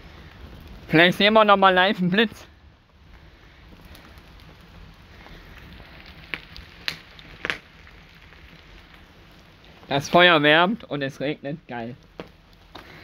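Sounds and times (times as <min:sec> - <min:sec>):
campfire crackling: 0:00.0 - 0:13.0
steady rain: 0:00.0 - 0:13.0
sharp cracks: 0:03.7 - 0:09.8.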